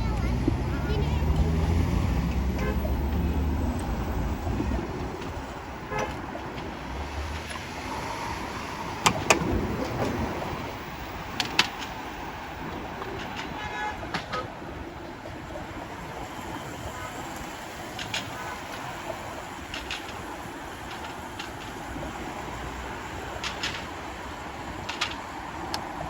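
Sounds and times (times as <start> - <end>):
street traffic road noise: 0.0 - 26.0
horn toots: 2.3 - 4.0, 5.8 - 6.4.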